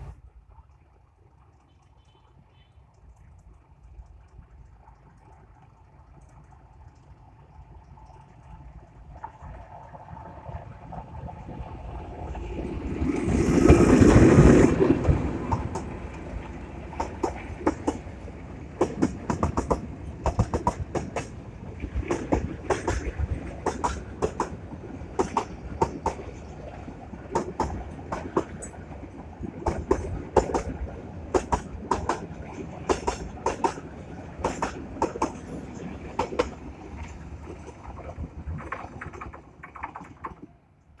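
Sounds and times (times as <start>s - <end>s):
low train rumble: 0.0s - 41.0s
train wheels clacking over rail joints: 12.9s - 26.5s, 27.2s - 40.5s.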